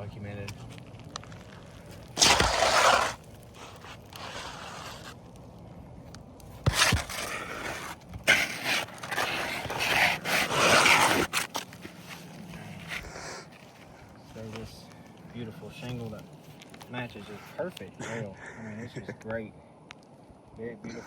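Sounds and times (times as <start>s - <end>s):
roof shingles scraping: 0.0s - 5.5s, 6.5s - 17.7s.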